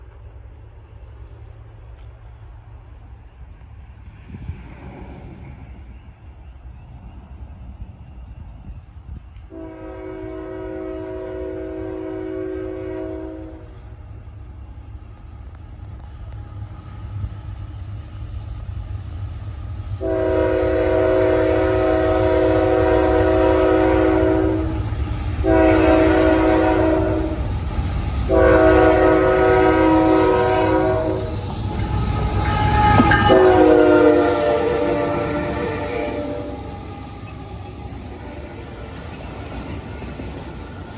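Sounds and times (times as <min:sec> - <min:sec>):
locomotive horn blasts: 0:09.5 - 0:13.8, 0:20.0 - 0:27.4, 0:28.3 - 0:38.7.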